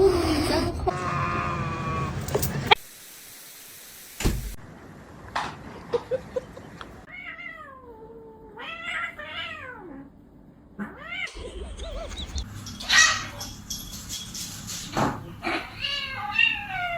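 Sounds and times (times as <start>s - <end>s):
cat meowing: 0.9s - 2.2s, 15.5s - 16.9s.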